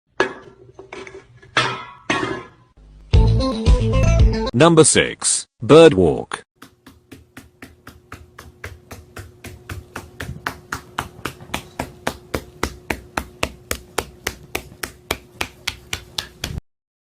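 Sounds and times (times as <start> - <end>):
bird's feet tapping on hard surface: 6.6 - 16.6.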